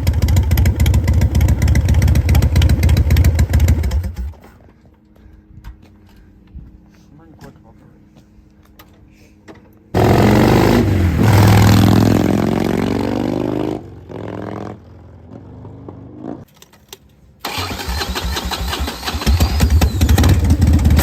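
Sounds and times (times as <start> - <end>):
motorcycle engine revving: 0.0 - 4.4, 10.0 - 16.5, 17.5 - 21.0.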